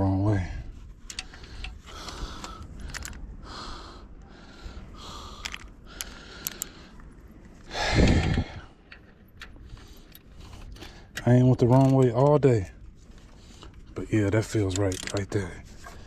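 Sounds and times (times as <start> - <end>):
man breathing hard: 1.1 - 8.9
metallic wrench clicks: 5.4 - 6.7, 14.7 - 15.3.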